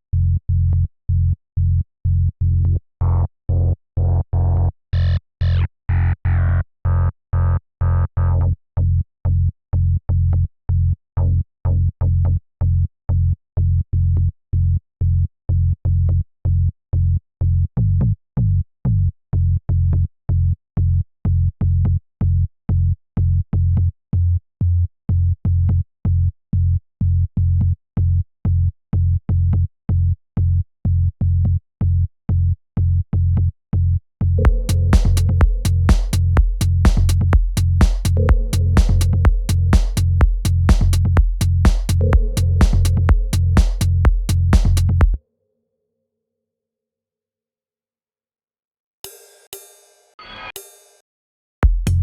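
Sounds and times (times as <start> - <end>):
deep gated bass pulse: 29.0 - 45.2, 51.6 - 52.0.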